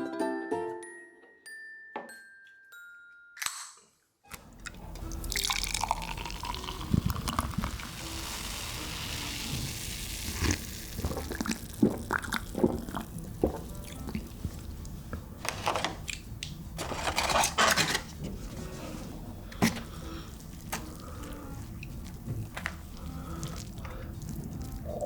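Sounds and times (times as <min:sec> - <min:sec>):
liquid pouring: 0:04.4 - 0:14.8.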